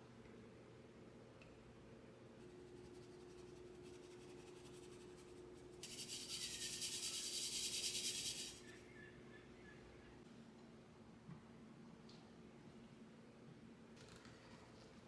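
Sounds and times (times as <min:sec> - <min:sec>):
rubbing scraping sound: 0:03.1 - 0:08.7.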